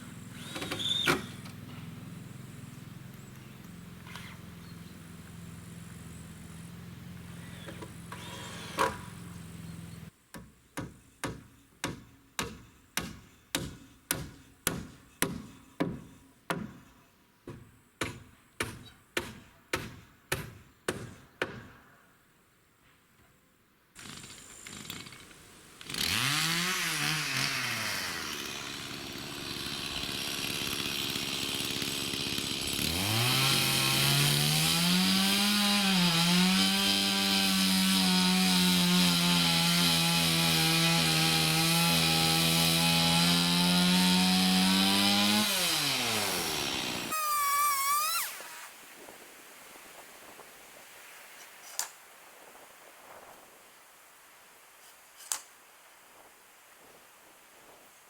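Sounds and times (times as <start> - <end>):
chainsaw cutting and revving: 0.0 - 10.1, 24.0 - 48.8.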